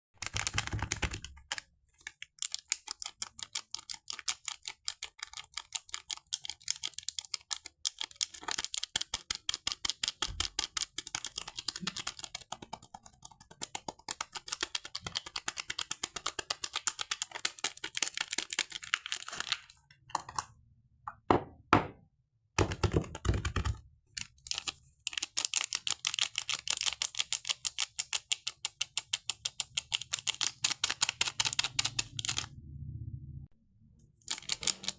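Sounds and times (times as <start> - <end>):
packaging tapping clicks: 22.6 - 32.4, 34.3 - 34.9.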